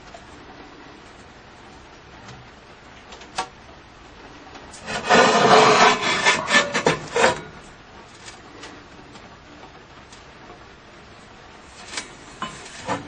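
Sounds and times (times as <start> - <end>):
rough scraping: 4.8 - 7.7, 11.8 - 13.0.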